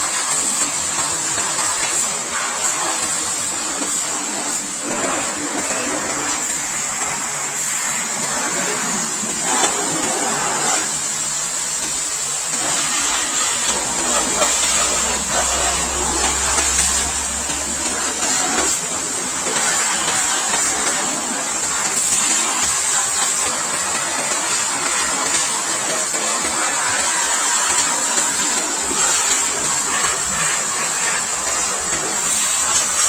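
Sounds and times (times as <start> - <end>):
pressure washer motor humming: 0.0 - 33.0
water jet hissing: 0.0 - 33.0
deeper hum: 13.6 - 19.2.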